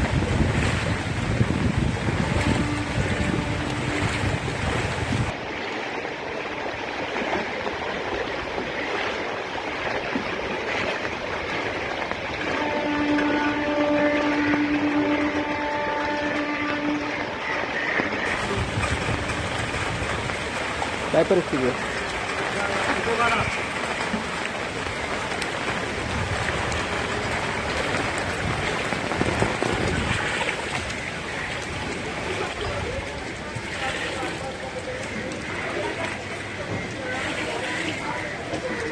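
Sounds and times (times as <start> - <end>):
rushing water hiss: 12.6 - 32.5.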